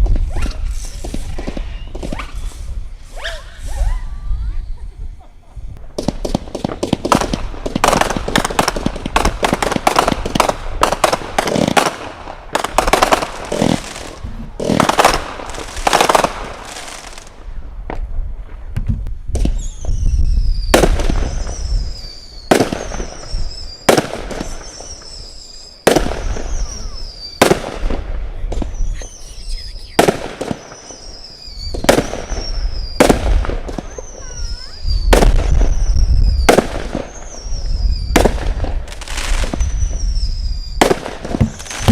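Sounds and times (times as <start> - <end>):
fireworks shots and crackling: 0.0 - 3.9, 5.7 - 41.9
falling whistle: 0.3 - 5.2, 26.3 - 27.4, 30.7 - 33.0, 39.6 - 40.8.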